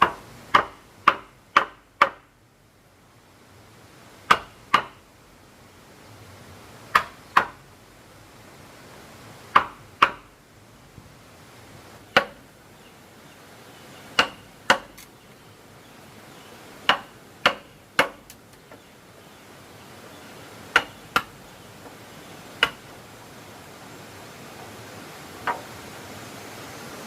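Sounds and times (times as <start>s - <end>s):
hand tool striking wood: 0.0s - 2.3s, 4.3s - 5.0s, 6.9s - 7.6s, 9.5s - 10.3s, 12.1s - 12.4s, 14.2s - 15.1s, 16.8s - 18.8s, 20.7s - 21.3s, 22.6s - 23.0s.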